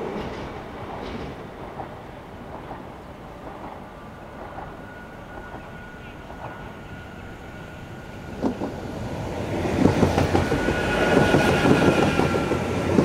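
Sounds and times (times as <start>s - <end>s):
train wheels clattering: 9.4s - 13.0s.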